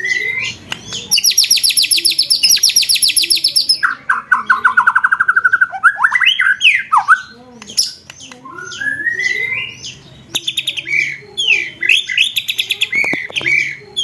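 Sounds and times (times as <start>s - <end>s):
songbird trilling: 0.0s - 14.0s.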